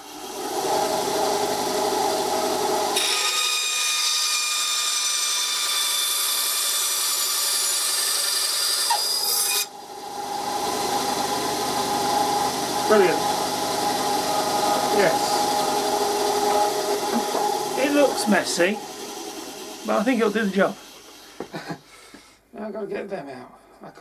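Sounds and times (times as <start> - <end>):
power tool cutting wood: 0.0 - 21.7.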